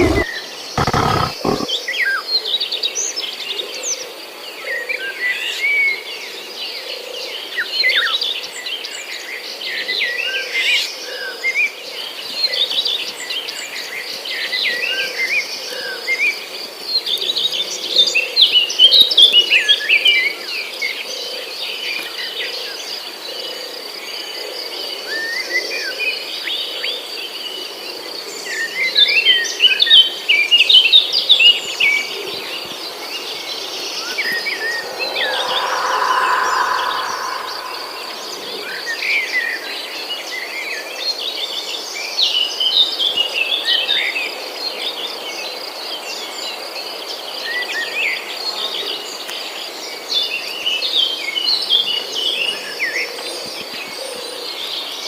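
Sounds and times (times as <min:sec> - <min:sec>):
high insect drone: 0:00.0 - 0:00.2, 0:00.8 - 0:01.7, 0:33.6 - 0:39.2
bird chirps and whistles: 0:34.4 - 0:38.8.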